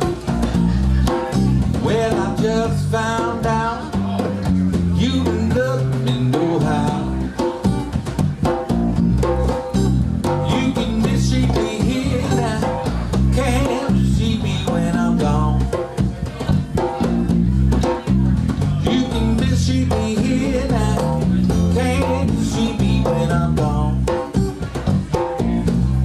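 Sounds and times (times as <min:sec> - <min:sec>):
bass guitar: 0:00.0 - 0:26.0
percussion steady beat: 0:00.0 - 0:26.0.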